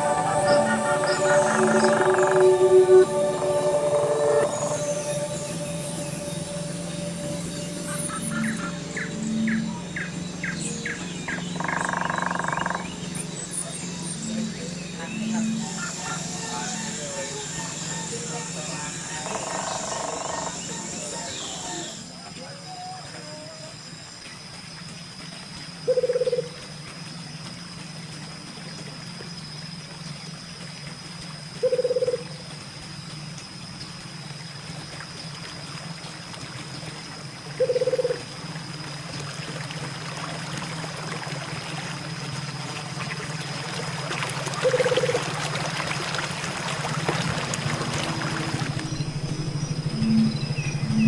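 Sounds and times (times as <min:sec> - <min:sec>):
water splashing and trickling: 0:26.5 - 0:51.0.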